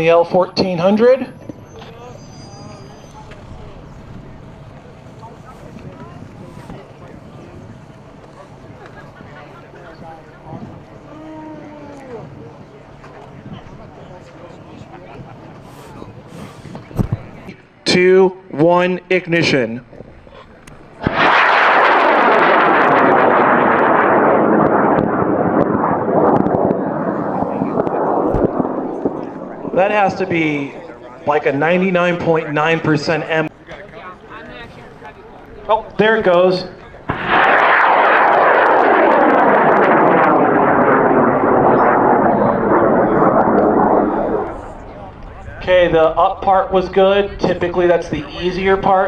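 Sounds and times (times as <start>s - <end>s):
rocket motor roaring: 13.8s - 17.5s, 21.0s - 30.9s, 37.0s - 45.8s.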